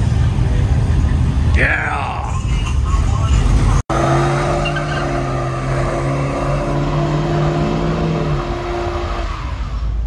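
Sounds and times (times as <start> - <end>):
car engine at high revs: 3.1 - 10.0.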